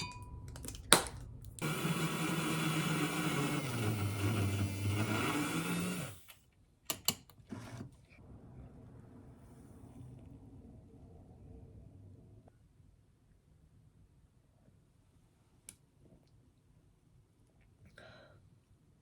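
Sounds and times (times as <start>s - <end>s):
electric motor appliance humming: 1.6s - 6.4s.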